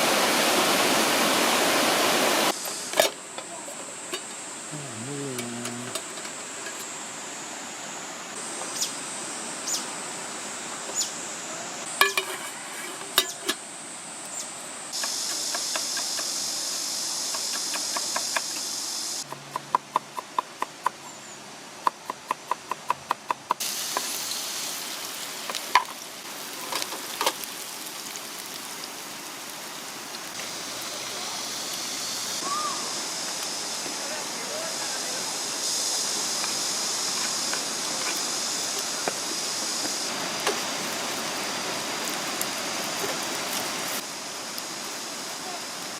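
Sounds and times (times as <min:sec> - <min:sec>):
rushing stream water: 0:00.0 - 0:02.9, 0:23.6 - 0:45.9.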